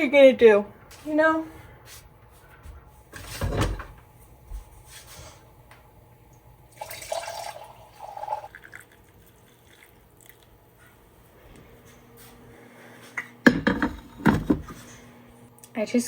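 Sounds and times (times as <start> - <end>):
liquid pouring and dripping: 6.3 - 10.6.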